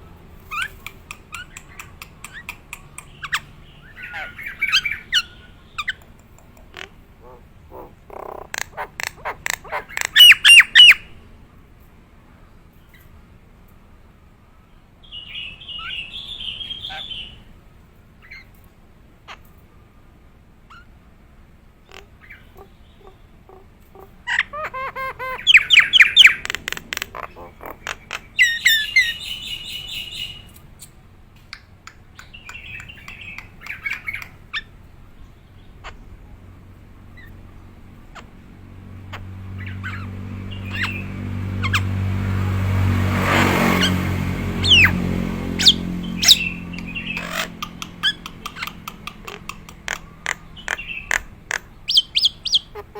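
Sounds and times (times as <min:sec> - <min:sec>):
myna whistles and squawks: 0:08.5 - 0:11.0, 0:24.3 - 0:26.5, 0:44.6 - 0:44.9, 0:45.6 - 0:46.5, 0:51.9 - 0:52.9.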